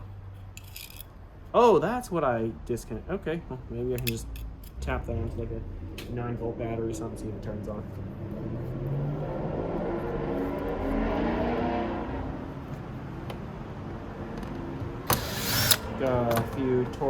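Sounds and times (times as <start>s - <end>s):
mechanical whirring: 15.0s - 16.5s
cordless power screwdriver: 15.1s - 16.5s.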